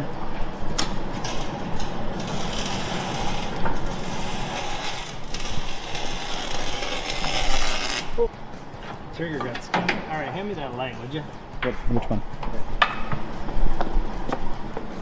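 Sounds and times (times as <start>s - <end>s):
welder arc crackling and sizzling: 1.1s - 8.2s.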